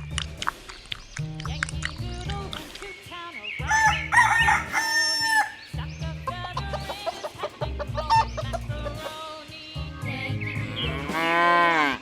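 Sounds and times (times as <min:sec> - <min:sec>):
chickens clucking: 0:03.6 - 0:11.0.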